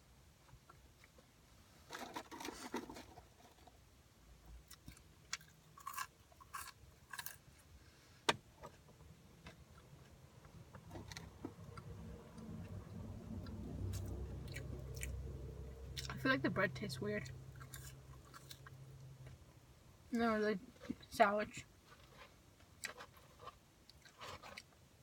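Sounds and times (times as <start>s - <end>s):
person chewing: 4.6s - 7.7s, 13.4s - 15.2s, 16.0s - 16.2s, 17.5s - 19.4s, 22.1s - 24.8s
person biting and crunching food: 4.7s - 7.7s, 17.5s - 18.8s.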